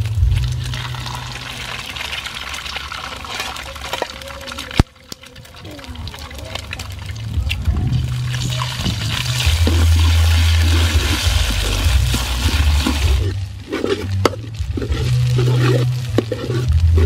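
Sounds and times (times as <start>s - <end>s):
low rumble: 0.0s - 1.8s, 6.9s - 17.0s
eggs sizzling in oil: 0.0s - 17.0s
metal spatula scraping wok: 9.1s - 17.0s.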